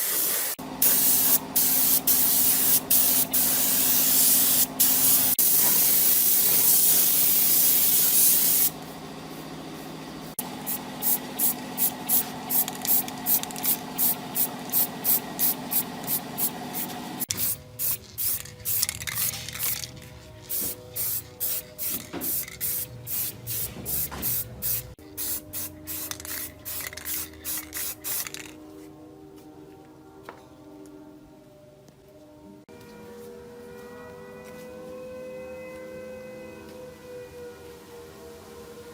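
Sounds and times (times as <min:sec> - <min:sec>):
aerosol spray hiss: 0:00.0 - 0:08.8, 0:20.6 - 0:28.2.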